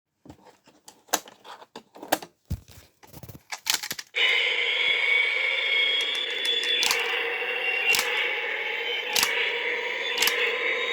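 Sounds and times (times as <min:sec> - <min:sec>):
plastic toy cars clicking: 0:03.4 - 0:04.1.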